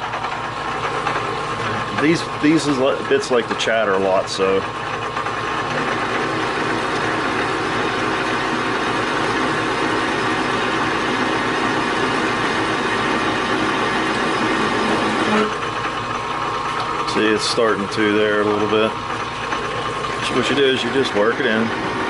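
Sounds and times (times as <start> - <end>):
metal lathe cutting with tool chatter: 0.0 - 22.0.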